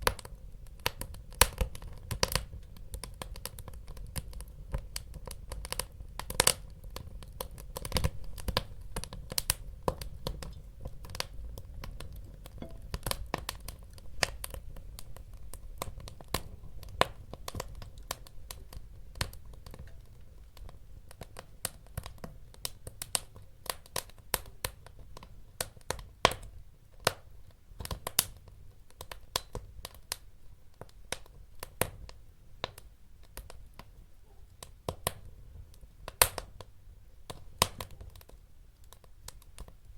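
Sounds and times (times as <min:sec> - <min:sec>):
low rumble of flames: 0:00.0 - 0:30.2
wood fire crackling and popping: 0:00.0 - 0:39.9.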